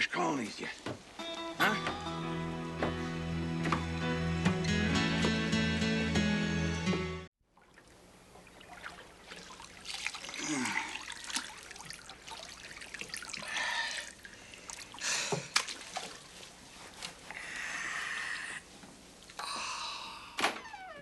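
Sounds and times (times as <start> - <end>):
water splashing in a tub: 7.4 - 17.2.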